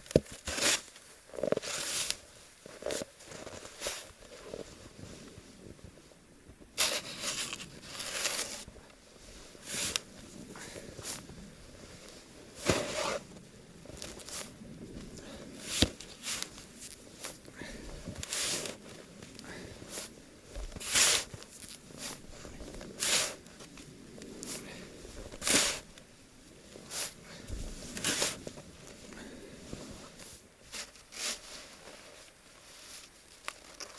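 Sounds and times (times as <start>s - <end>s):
snow shovel scraping snow: 1.6s - 2.2s, 6.8s - 8.7s, 9.6s - 10.2s, 12.4s - 13.4s, 15.3s - 17.4s, 18.1s - 18.8s, 19.5s - 20.2s, 20.8s - 25.9s, 26.8s - 33.2s.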